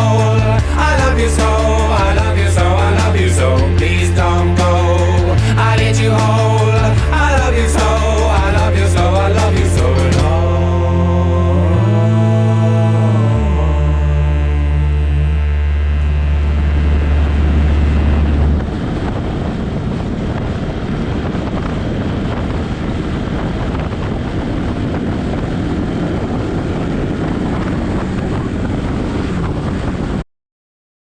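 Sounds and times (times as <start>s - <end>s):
wind rush: 0.0s - 13.5s, 15.9s - 30.2s
music low note: 0.0s - 19.1s
motorcycle road noise: 0.0s - 30.2s.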